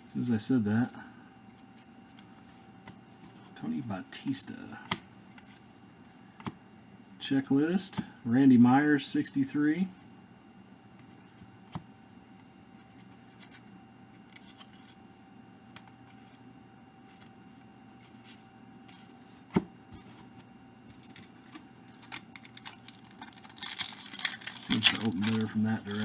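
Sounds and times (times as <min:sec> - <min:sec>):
card pack wrapper crinkling: 0:20.9 - 0:26.0.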